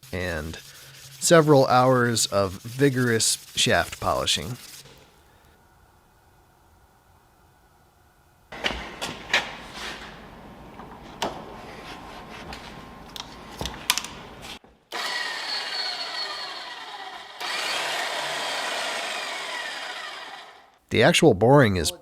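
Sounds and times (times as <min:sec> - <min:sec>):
power tool whining: 0:14.9 - 0:20.8.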